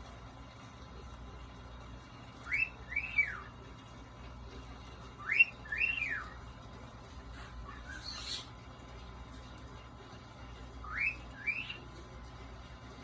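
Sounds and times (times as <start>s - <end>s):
cockatiel whistling: 2.4s - 3.5s, 5.2s - 6.4s, 7.7s - 8.5s, 10.8s - 11.8s.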